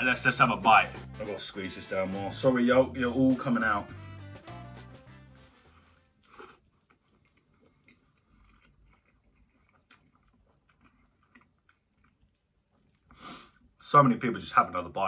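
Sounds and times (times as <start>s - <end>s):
background music: 0.0s - 6.2s
faint close-up chewing: 5.7s - 13.8s
wet mouth clicks: 6.2s - 13.1s.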